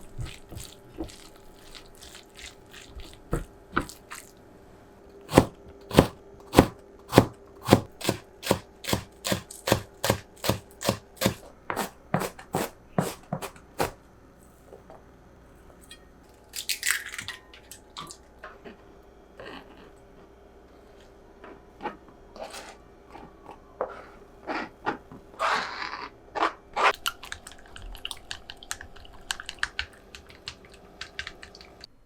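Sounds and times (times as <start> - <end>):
knife chopping on cutting board: 5.3 - 14.0.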